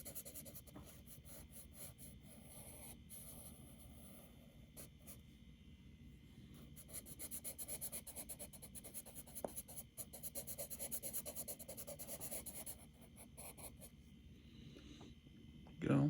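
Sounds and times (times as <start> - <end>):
charcoal scratching on paper: 0.0 - 4.9, 6.8 - 13.8.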